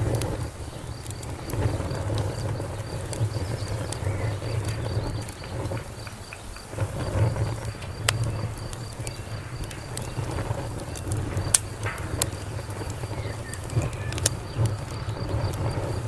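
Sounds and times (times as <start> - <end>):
insect chirping: 0.0 - 16.0
wood fire crackling: 0.0 - 16.0.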